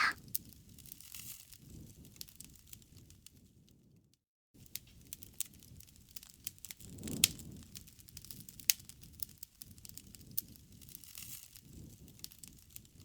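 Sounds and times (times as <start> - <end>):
wood fire crackling and popping: 4.6 - 13.0.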